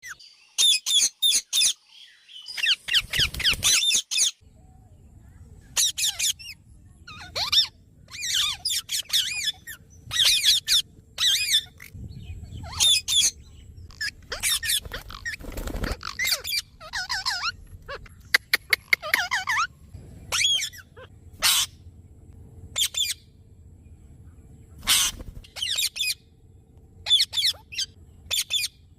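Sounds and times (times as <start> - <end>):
parrot calling: 5.7 - 19.7, 20.3 - 21.8, 22.7 - 23.3, 24.8 - 26.2, 27.0 - 28.8.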